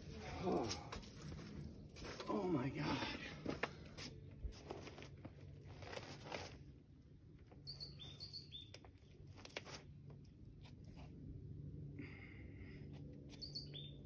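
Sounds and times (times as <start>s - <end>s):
climber scuffs and breaths: 0.0s - 6.7s
small bird chirping: 7.6s - 9.1s, 13.3s - 14.0s.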